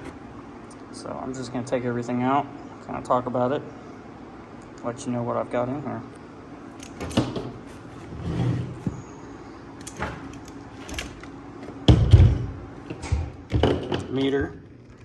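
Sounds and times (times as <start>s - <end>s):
tools clicking and knocking: 6.8s - 7.6s, 9.8s - 14.6s.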